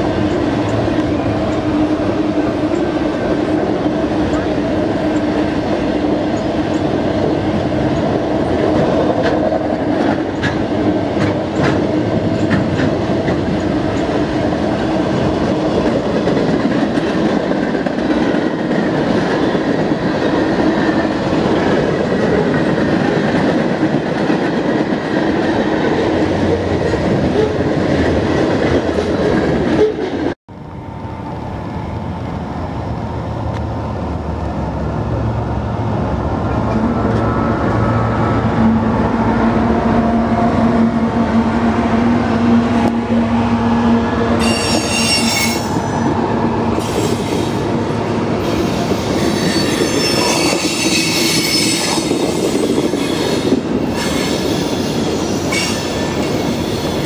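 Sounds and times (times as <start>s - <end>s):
freight train wheels rattling: 0.0s - 30.4s, 44.0s - 57.0s.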